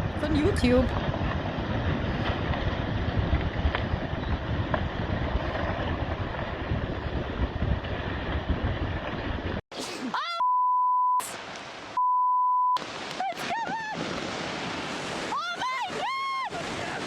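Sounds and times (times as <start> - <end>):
storm wind: 0.0 - 9.6, 12.8 - 17.0
high censor beeps: 10.4 - 11.4, 12.0 - 12.8
surf noise: 12.8 - 17.0.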